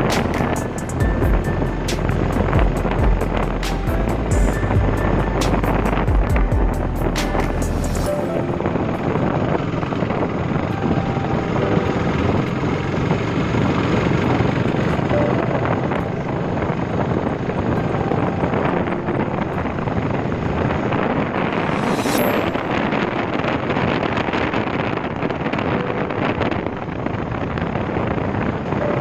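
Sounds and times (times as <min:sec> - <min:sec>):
motorcycle engine running: 0:00.0 - 0:22.1
wind noise on microphone: 0:00.0 - 0:29.0.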